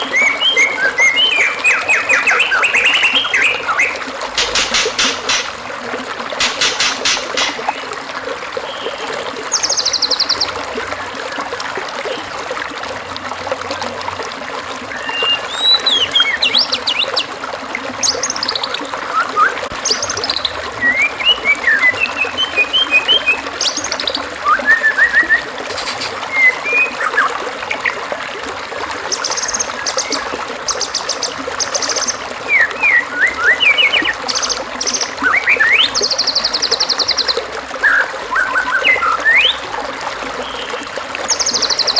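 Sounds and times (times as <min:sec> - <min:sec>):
birdsong whistles chirps and trills: 0:00.0 - 0:05.6, 0:08.7 - 0:10.6, 0:14.9 - 0:17.3, 0:18.0 - 0:28.0, 0:29.0 - 0:39.8, 0:40.4 - 0:41.9
trickling water: 0:00.0 - 0:41.9.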